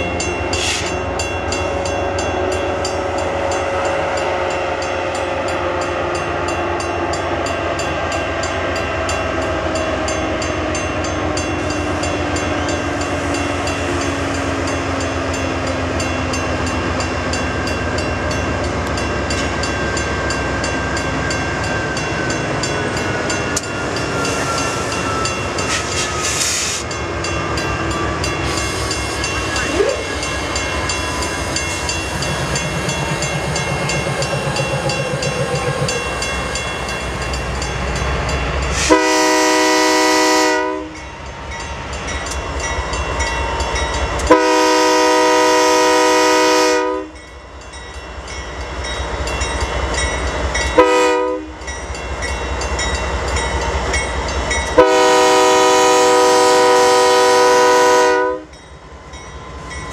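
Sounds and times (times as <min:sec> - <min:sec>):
freight train rumbling past: 0:00.0 - 0:59.9
locomotive horn blasts: 0:38.8 - 0:41.0, 0:44.3 - 0:47.2, 0:50.8 - 0:51.6, 0:54.8 - 0:58.6.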